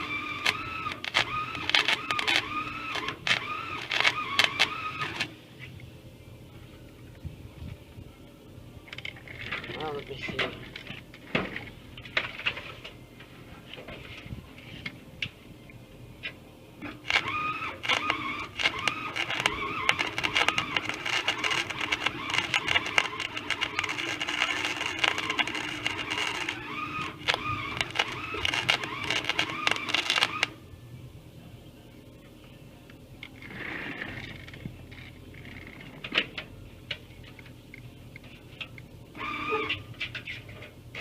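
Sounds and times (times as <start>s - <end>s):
welder arc crackling: 0.0s - 5.4s, 16.8s - 30.6s.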